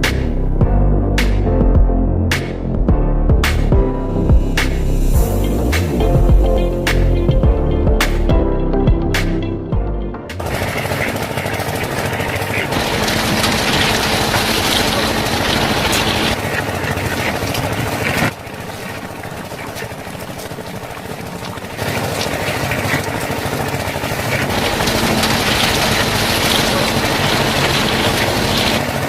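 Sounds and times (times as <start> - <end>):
engine running steadily: 10.3 - 29.0.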